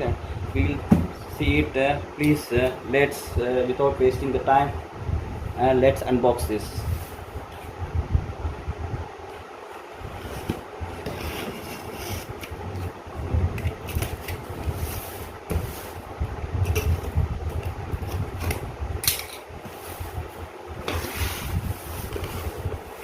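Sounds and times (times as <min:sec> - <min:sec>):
low bumps and knocks: 0:00.8 - 0:01.2.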